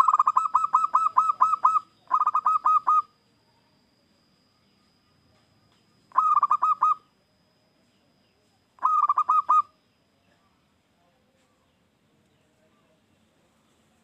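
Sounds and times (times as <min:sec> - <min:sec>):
dove cooing: 0:00.0 - 0:03.2, 0:06.1 - 0:07.0, 0:08.8 - 0:09.8.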